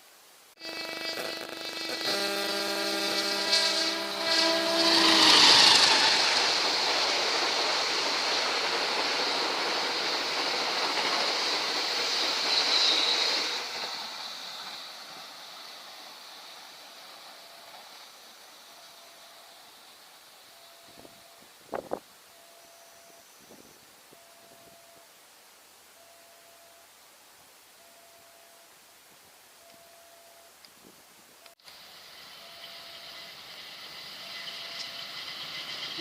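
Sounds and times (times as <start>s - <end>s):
train horn: 0.6s - 8.2s
train wheels rushing on rails: 0.6s - 23.2s, 31.6s - 36.0s.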